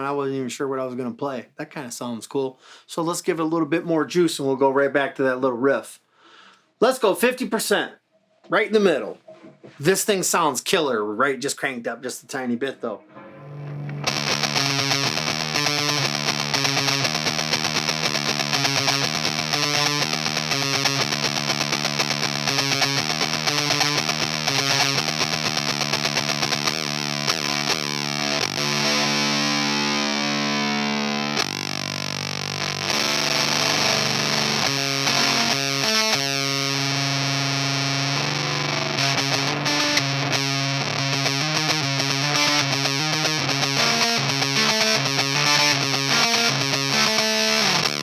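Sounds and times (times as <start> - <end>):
distorted electric guitar riff: 12.7 - 48.0.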